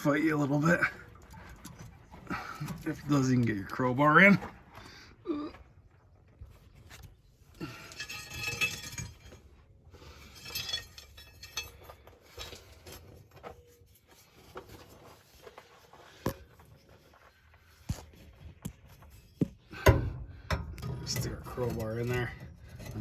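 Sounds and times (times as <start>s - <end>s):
metal tools clinking: 7.6s - 14.1s, 19.1s - 23.0s.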